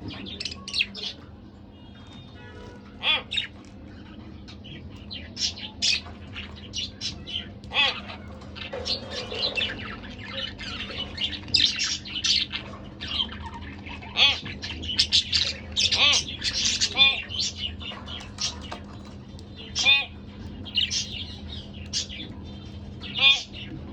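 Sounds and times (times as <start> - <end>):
budgerigar squawks: 2.9 - 3.5, 7.1 - 8.2, 13.9 - 17.7, 19.7 - 20.2, 23.0 - 23.7
budgerigars chirping: 3.0 - 3.5, 6.8 - 18.9, 19.6 - 22.4, 23.0 - 23.7.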